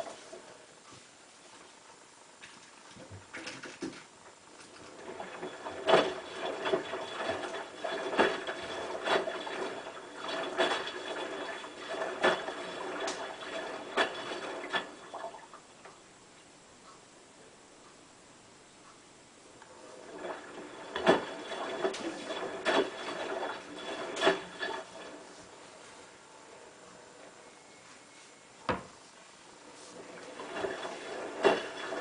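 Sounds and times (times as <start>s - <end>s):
water swishing: 4.7s - 15.7s, 19.7s - 26.7s, 29.5s - 32.0s
washing machine drum turning: 30.2s - 32.0s.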